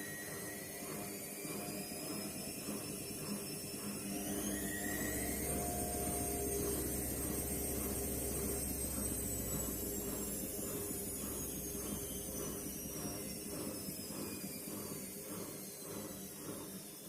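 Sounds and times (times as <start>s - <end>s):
washing machine motor whine: 0.0s - 17.0s
low hum: 3.9s - 14.3s.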